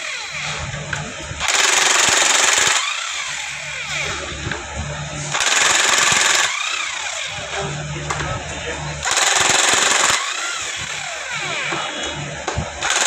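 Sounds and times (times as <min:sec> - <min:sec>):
low steady hum: 0:02.8 - 0:09.4, 0:10.0 - 0:12.9.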